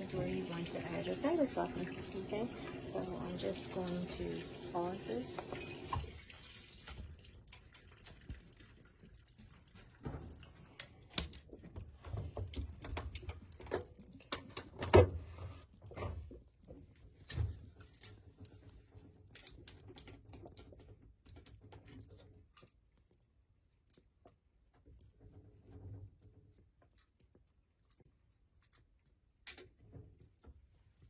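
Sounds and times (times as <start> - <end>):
water running into tub: 0.0 - 22.6
water dripping: 0.0 - 31.0
small clicks and knocks: 6.9 - 31.0.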